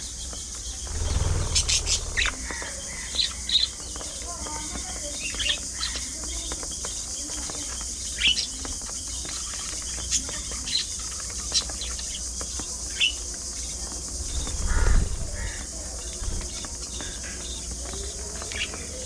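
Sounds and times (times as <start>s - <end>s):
low rumble: 0.8s - 3.0s, 14.2s - 15.6s.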